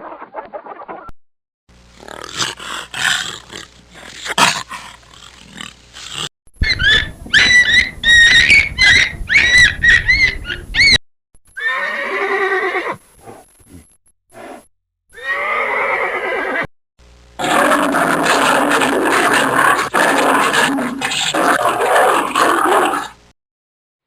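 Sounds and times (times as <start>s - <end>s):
animal calls: 2.0s - 11.0s.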